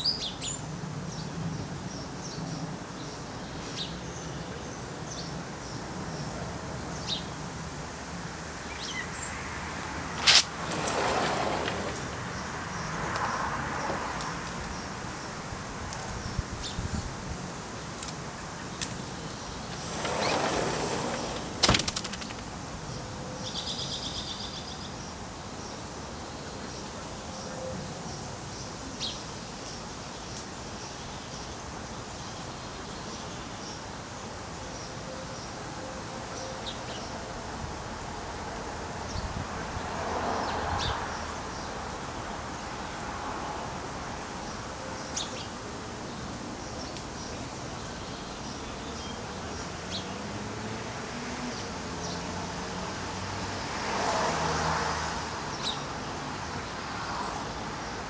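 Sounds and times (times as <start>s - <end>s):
steady outdoor background: 0.0s - 58.0s.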